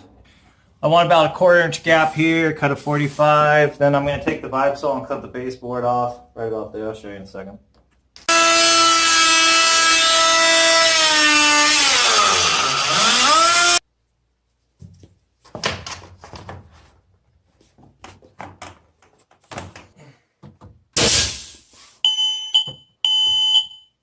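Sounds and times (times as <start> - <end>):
multi-tool cutting wood: 8.2 - 13.8.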